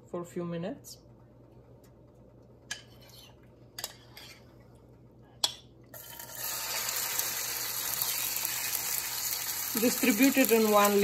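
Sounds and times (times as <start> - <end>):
chicken sizzling in hot oil: 6.0 - 11.0.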